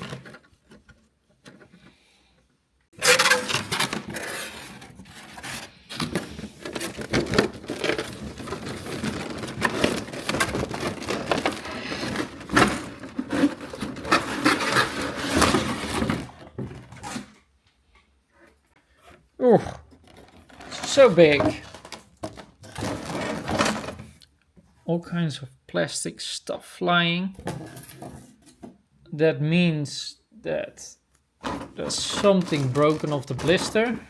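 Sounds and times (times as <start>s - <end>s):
packaging scraping and crinkling: 0.0s - 0.9s, 3.0s - 17.4s, 19.9s - 24.2s, 31.4s - 34.0s.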